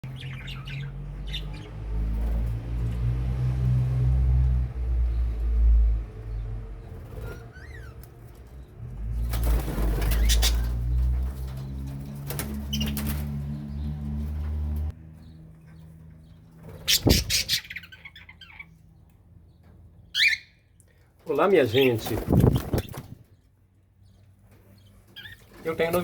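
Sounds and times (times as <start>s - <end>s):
birds flapping wings: 6.9s - 14.4s, 21.7s - 23.2s.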